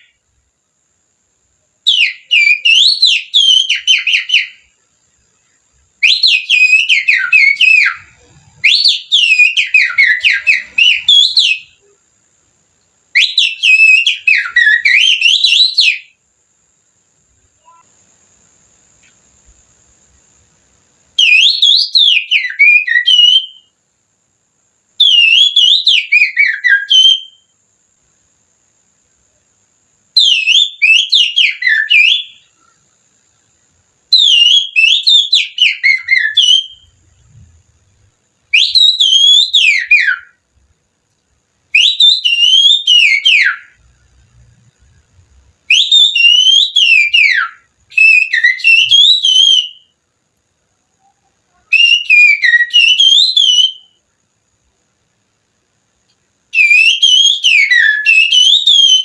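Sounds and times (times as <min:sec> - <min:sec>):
person whistling birdsong: 0:06.0 - 0:12.0, 0:13.2 - 0:16.0, 0:41.8 - 0:43.8, 0:45.7 - 0:49.9, 0:51.0 - 0:54.0, 0:56.6 - 0:59.0.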